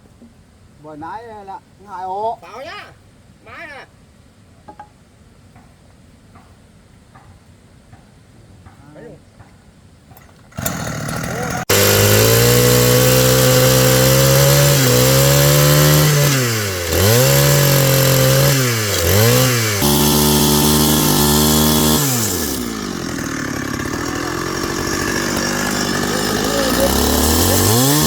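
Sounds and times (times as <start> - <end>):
petrol power drill boring into wood: 10.5 - 28.0.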